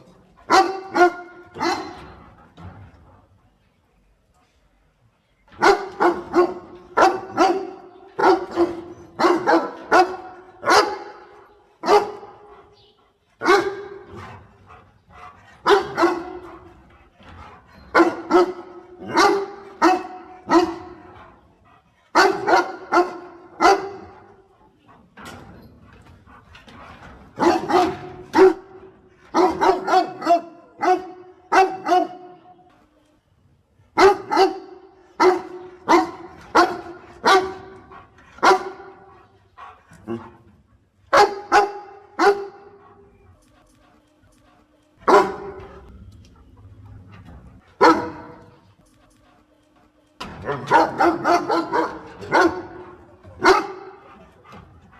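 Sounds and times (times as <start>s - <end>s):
dog barking: 0.5s - 2.0s, 5.6s - 12.4s, 13.4s - 14.2s, 15.6s - 16.5s, 18.0s - 21.1s, 22.2s - 24.2s, 27.4s - 32.4s, 34.0s - 37.8s, 38.4s - 39.1s, 41.1s - 42.8s, 45.1s - 45.8s, 47.8s - 48.5s, 50.6s - 54.0s.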